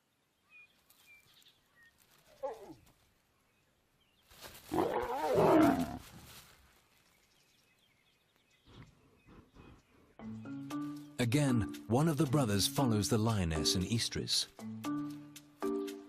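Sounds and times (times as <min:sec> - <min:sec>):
lion growling: 0:04.7 - 0:06.0
lion snarling: 0:04.7 - 0:06.0.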